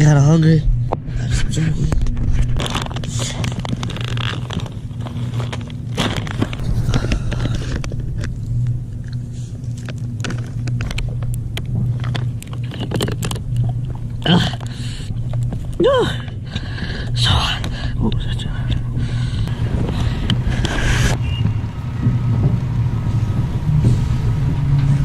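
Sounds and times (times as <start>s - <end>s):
low mechanical hum: 0.0s - 25.0s
clicks and crackling rustles: 1.8s - 21.2s.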